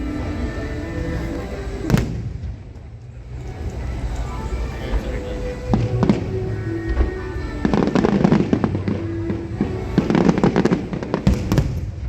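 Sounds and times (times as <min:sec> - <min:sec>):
fireworks bangs and crackles: 0:01.8 - 0:03.9, 0:05.7 - 0:12.0.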